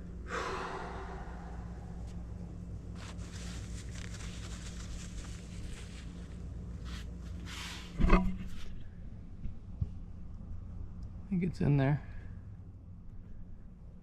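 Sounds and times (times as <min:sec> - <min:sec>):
steady low hum: 0:00.0 - 0:14.0
scratching and handling noises: 0:02.8 - 0:08.8.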